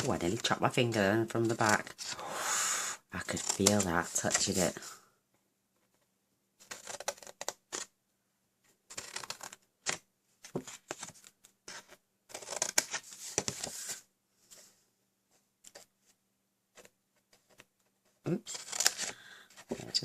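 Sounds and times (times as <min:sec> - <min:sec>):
card rustling: 0:03.2 - 0:04.8, 0:05.8 - 0:07.9, 0:08.9 - 0:14.1, 0:18.4 - 0:20.0.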